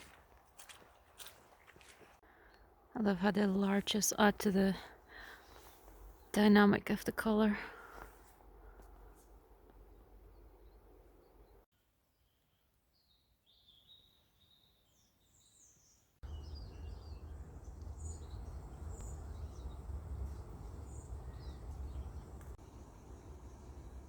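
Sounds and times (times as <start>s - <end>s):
small birds chirping: 9.9s - 24.0s
wind rumble on microphone: 16.3s - 24.0s.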